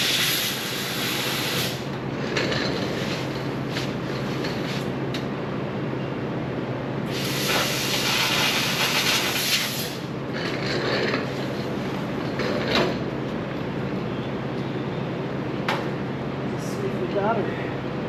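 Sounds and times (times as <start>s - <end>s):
laser cutting hiss: 0.0s - 1.8s, 7.1s - 10.0s.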